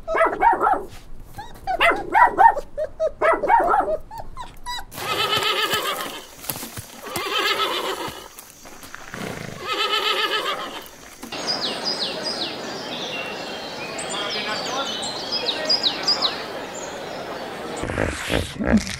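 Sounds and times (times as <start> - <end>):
birds chirping: 3.2 - 18.6
horse whinnying: 4.9 - 6.3, 7.0 - 8.3, 9.1 - 10.9.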